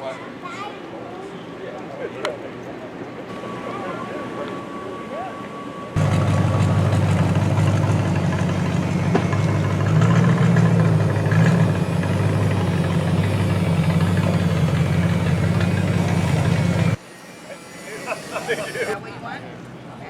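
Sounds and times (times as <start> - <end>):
vehicle engine idling: 6.0 - 19.0.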